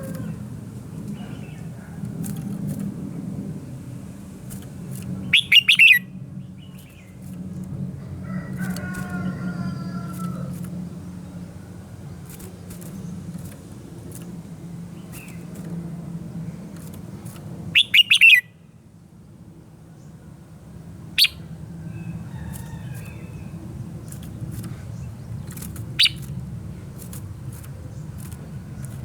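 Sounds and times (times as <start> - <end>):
steady low rumble: 0.0 - 17.8
bird chirping: 5.2 - 7.2, 17.7 - 18.5, 21.2 - 26.4.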